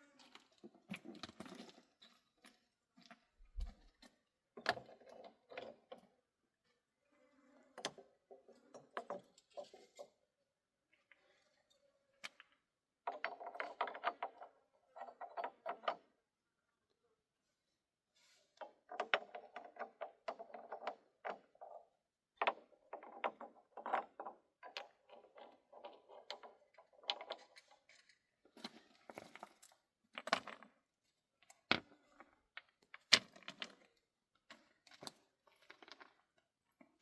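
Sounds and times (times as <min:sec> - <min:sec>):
objects clicking and scraping: 0:00.2 - 0:06.1, 0:07.8 - 0:10.2, 0:22.4 - 0:30.8, 0:31.4 - 0:37.0.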